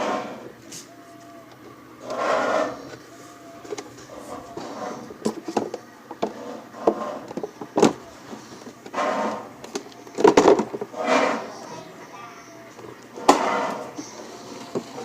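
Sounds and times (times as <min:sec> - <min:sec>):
clattering bursts: 0:03.6 - 0:11.8, 0:12.7 - 0:15.0.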